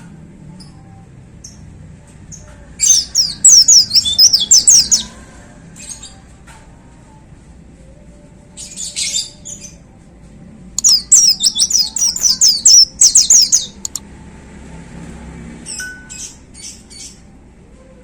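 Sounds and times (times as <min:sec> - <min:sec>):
bird singing rapid high notes: 0:02.9 - 0:05.1, 0:10.8 - 0:14.0.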